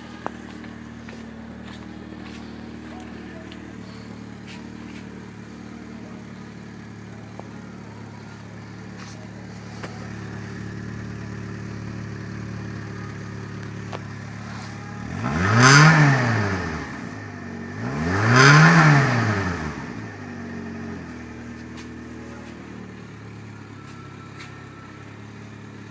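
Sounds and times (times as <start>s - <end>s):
car engine idling and revving: 0.0s - 25.9s.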